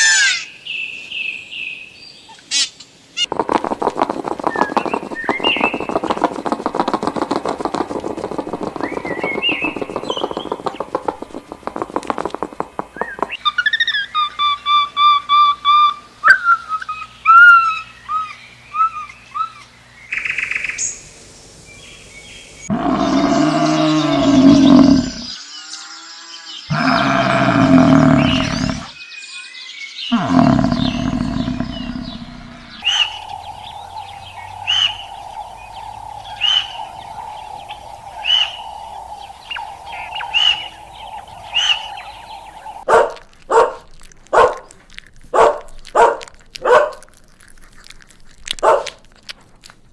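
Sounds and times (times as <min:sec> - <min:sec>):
animal chirps: 0:02.5 - 0:16.0, 0:22.7 - 0:25.4, 0:26.7 - 0:29.0, 0:30.1 - 0:49.3
animal roars: 0:22.7 - 0:25.4, 0:26.7 - 0:29.0, 0:30.1 - 0:42.9
steady hum: 0:32.0 - 0:42.9
animal barks: 0:42.7 - 0:44.7, 0:45.3 - 0:47.2, 0:48.5 - 0:49.1.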